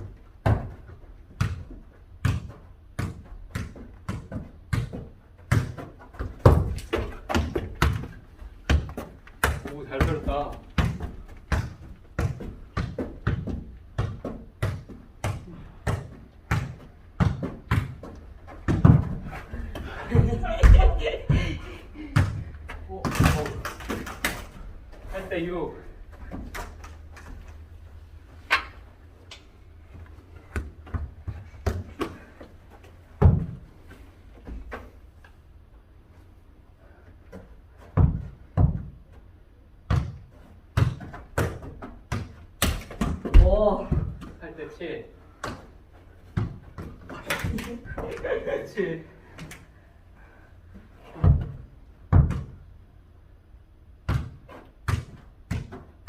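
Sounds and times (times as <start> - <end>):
ball kicked thudding: 0.4 - 19.3.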